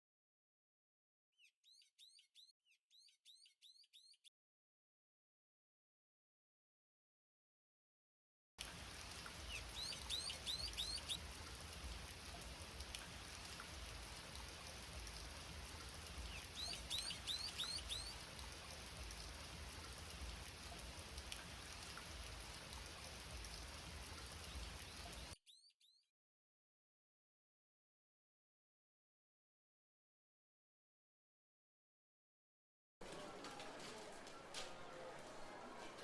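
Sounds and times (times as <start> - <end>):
rain hissing: 8.6 - 25.4
bird chirping: 9.0 - 11.3, 16.1 - 19.2.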